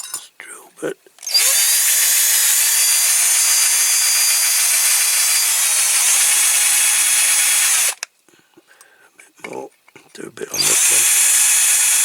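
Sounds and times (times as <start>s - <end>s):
electric drill grinding into metal: 1.2s - 8.0s, 10.6s - 12.0s.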